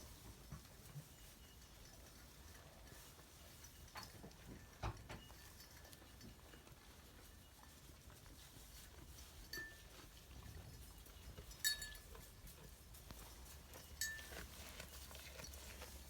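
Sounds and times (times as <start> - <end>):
faint rustling of animals: 0.0 - 16.0
sheep bell clinking: 0.0 - 16.0.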